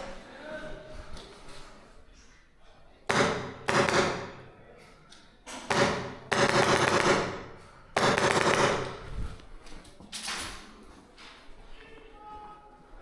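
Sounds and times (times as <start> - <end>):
airsoft rifle firing bursts: 3.1 - 4.4, 5.7 - 9.0.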